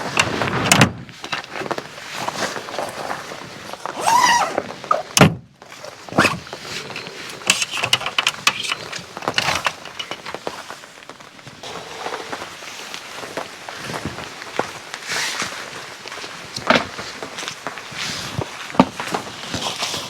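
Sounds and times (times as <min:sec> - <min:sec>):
knocks and thumps: 0:06.1 - 0:10.5.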